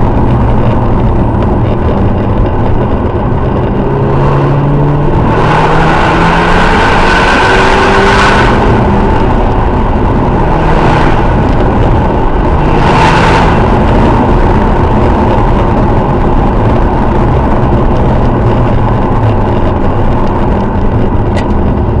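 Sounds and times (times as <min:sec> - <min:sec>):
car exhaust running loud: 0:00.0 - 0:22.0.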